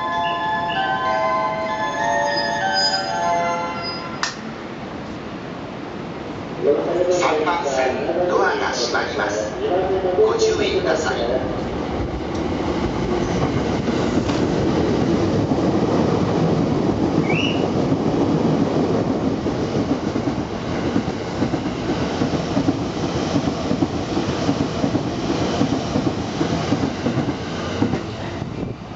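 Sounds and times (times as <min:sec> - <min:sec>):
train wheels rumbling and clattering: 0:11.5 - 0:28.9.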